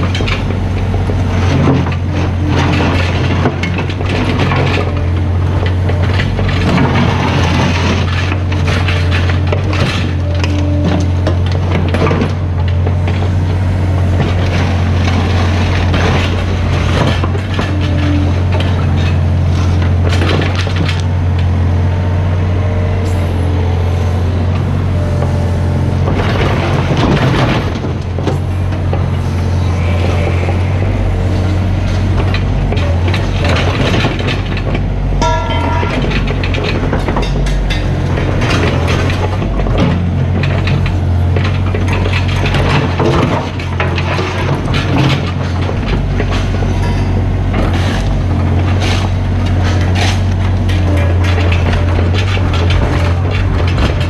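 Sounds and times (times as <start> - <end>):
excavator diesel engine: 0.0 - 54.0.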